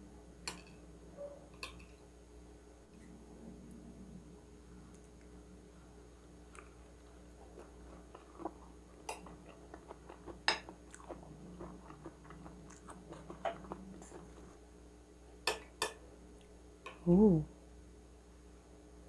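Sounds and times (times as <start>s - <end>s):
chewing food: 6.4s - 14.6s.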